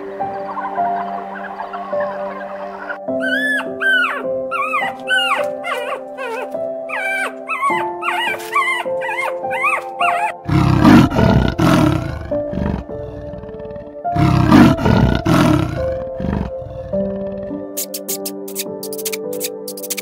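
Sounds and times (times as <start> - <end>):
background music: 0.0 - 20.0
high gliding yelps: 0.5 - 10.5
large animal roaring: 10.4 - 17.7.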